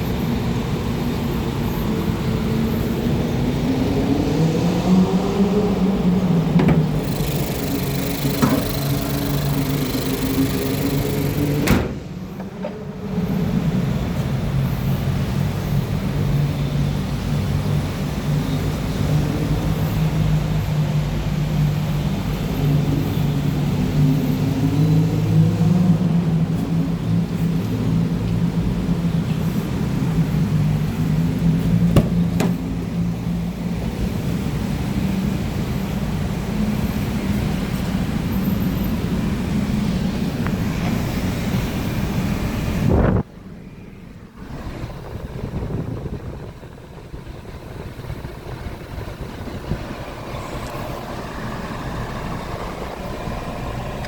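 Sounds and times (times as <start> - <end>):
car engine idling: 5.7 - 13.1, 29.8 - 34.4, 44.4 - 54.0
sharp clicks: 6.6 - 12.0
sharp knock: 32.0 - 32.6.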